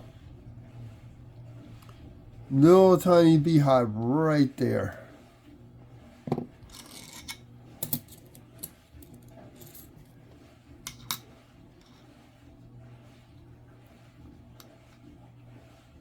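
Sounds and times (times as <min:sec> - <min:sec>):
steady low hum: 0:00.0 - 0:06.0
coins clicking on a table: 0:06.7 - 0:09.9.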